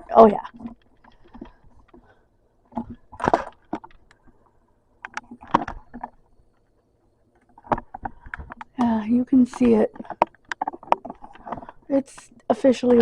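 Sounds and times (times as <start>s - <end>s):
short knocks clicks and rustles: 0.4s - 2.1s, 5.0s - 12.3s.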